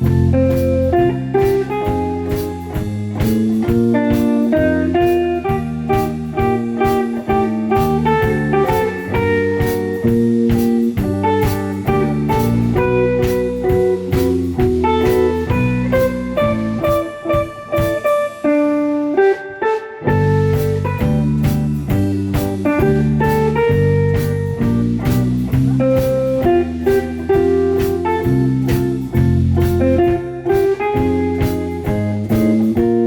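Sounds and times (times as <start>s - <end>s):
bass line: 0.0s - 18.0s, 20.1s - 33.0s
steady drum beat: 0.0s - 18.6s, 20.1s - 33.0s.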